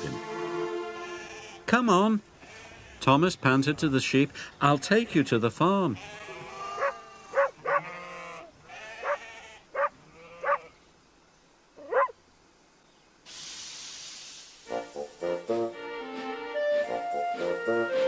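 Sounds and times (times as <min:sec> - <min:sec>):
sheep bleating: 0:00.9 - 0:01.7, 0:02.4 - 0:03.0, 0:05.9 - 0:10.8
steady hiss: 0:10.7 - 0:18.0.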